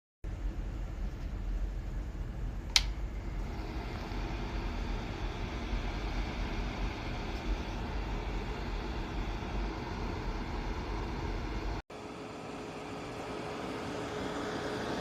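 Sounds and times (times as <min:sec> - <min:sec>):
heater fan whirring: 0:00.3 - 0:15.0
heater switch click: 0:02.6 - 0:03.0.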